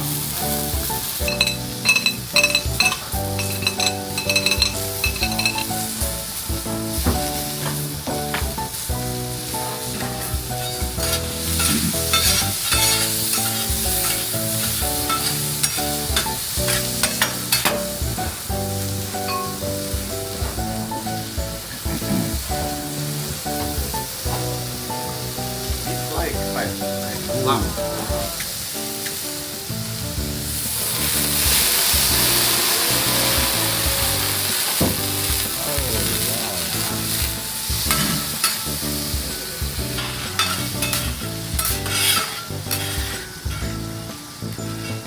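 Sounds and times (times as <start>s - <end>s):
background music with melody: 0.0s - 45.0s
food sizzling in a pan: 0.0s - 45.0s.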